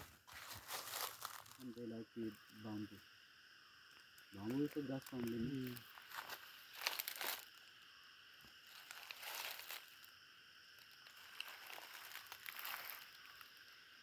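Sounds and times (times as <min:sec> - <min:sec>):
footsteps crunching on dry leaves: 0:00.0 - 0:01.7, 0:05.6 - 0:07.6, 0:08.5 - 0:10.1, 0:10.9 - 0:13.6
high-pitched insect chorus: 0:00.0 - 0:14.0.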